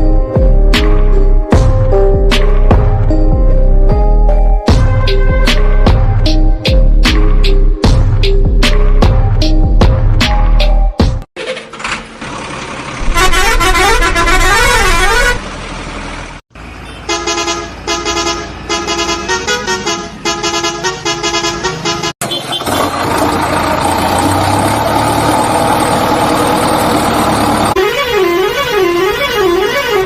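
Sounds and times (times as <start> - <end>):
steady vehicle noise: 0.0 - 30.0
horn tune of pulsed notes: 4.7 - 6.4, 13.0 - 15.5, 27.7 - 30.0
warbling horn: 13.0 - 15.4, 27.7 - 30.0.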